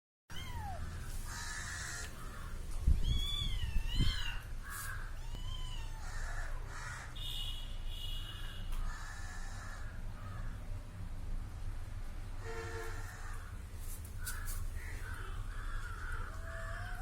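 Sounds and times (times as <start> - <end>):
kitten meowing: 0.3 - 0.9, 2.9 - 4.5, 5.1 - 6.4.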